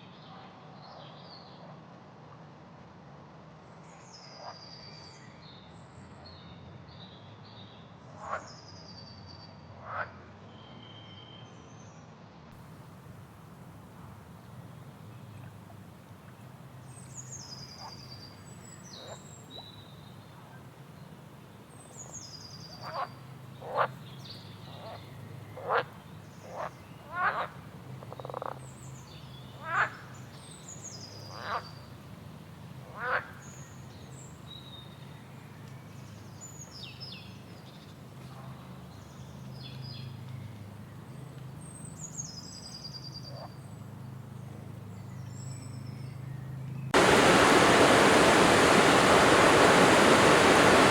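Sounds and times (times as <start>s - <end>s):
low steady hum: 46.9s - 50.9s.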